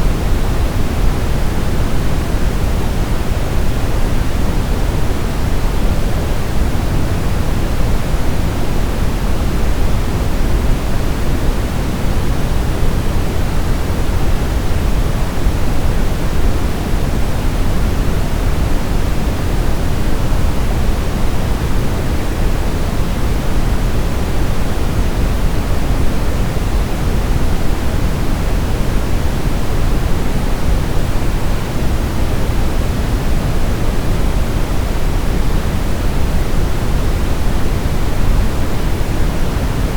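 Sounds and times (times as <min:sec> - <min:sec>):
brown noise hiss: 0:00.0 - 0:39.9.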